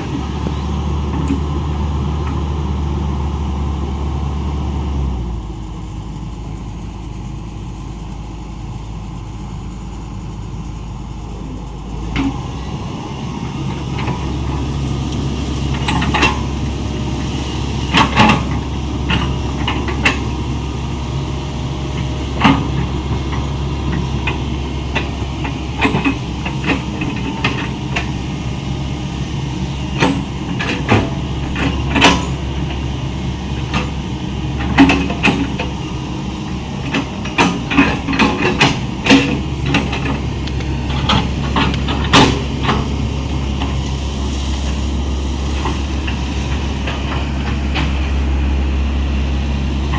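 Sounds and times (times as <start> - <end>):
excavator diesel engine running: 0.0 - 49.9
sharp clanks and knocks: 15.7 - 16.5, 17.9 - 20.4, 22.0 - 28.2, 29.9 - 44.0.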